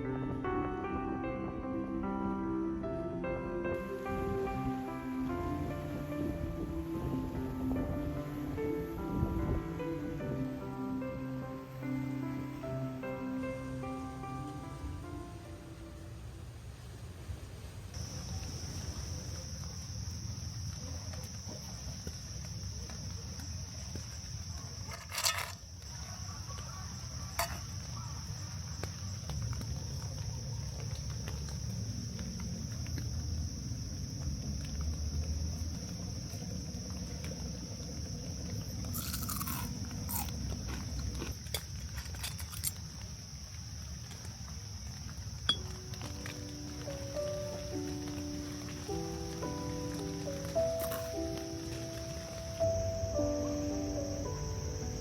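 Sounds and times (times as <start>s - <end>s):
low rumble: 0.0s - 11.8s
insects chirring: 0.0s - 55.0s.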